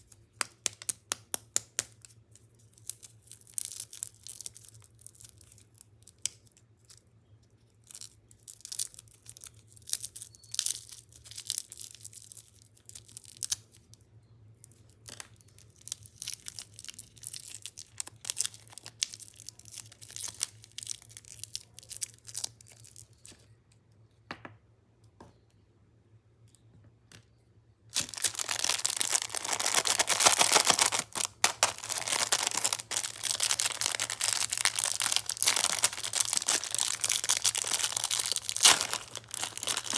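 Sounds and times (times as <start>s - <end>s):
plastic wrappers crinkling: 7.9s - 13.6s, 15.4s - 23.2s, 27.9s - 39.9s.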